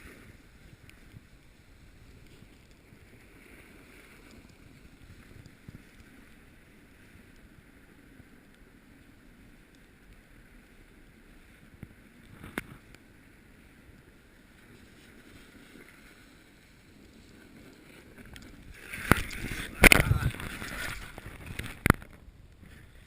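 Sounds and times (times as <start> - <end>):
snowboard scraping and knocking: 14.6 - 23.0
wind on microphone: 17.3 - 23.0.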